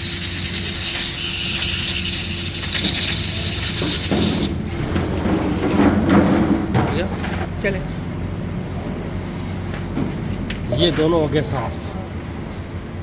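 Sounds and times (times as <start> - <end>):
compressed air blow gun hissing: 0.0 - 4.6.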